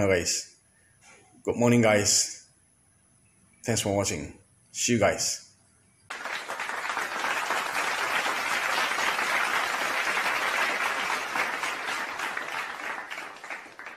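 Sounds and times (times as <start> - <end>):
crowd applause: 6.1 - 13.9.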